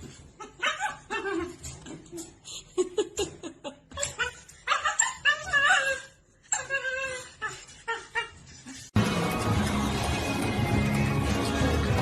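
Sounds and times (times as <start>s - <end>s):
dog crying: 0.2s - 2.1s, 3.8s - 8.9s
music: 9.0s - 12.0s.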